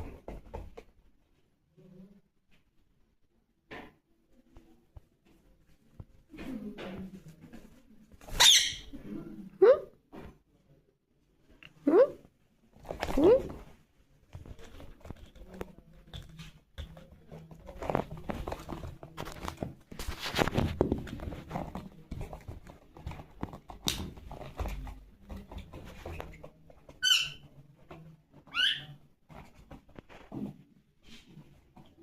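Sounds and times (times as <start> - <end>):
parrot squawking: 8.4 - 8.9, 27.0 - 27.4, 28.5 - 28.9
rustling: 12.6 - 32.0.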